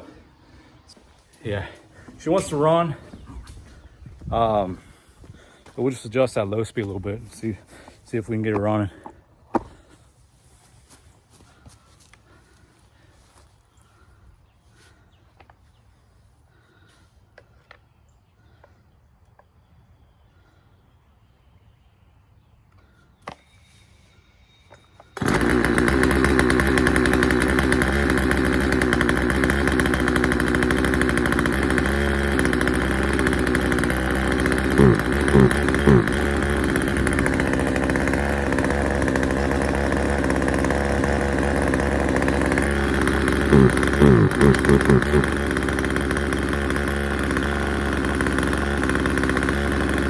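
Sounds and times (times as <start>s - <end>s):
chainsaw engine running: 1.4s - 3.3s, 4.3s - 9.9s, 11.5s - 13.4s, 25.0s - 50.0s
chainsaw throttle blips: 25.0s - 50.0s.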